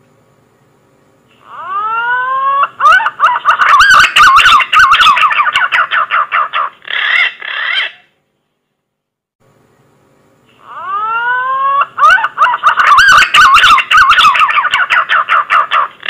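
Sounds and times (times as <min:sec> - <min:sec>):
pigeon song: 0:01.4 - 0:08.1, 0:10.5 - 0:16.0.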